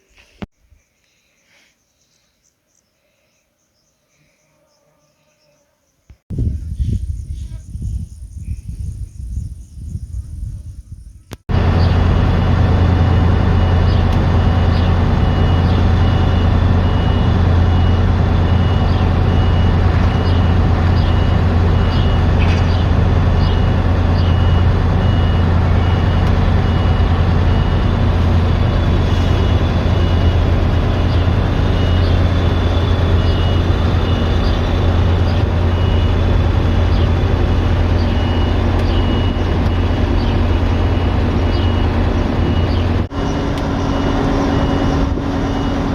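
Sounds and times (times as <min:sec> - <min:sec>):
combine harvester engine drone: 0:11.5 - 0:45.9
high warning beep: 0:13.0 - 0:43.0.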